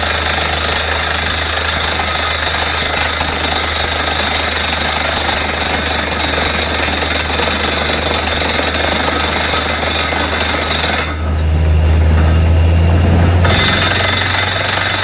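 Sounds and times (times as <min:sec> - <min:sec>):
drilling rig hammering rattle: 0:00.0 - 0:15.0
engine and compressor drone: 0:00.0 - 0:15.0.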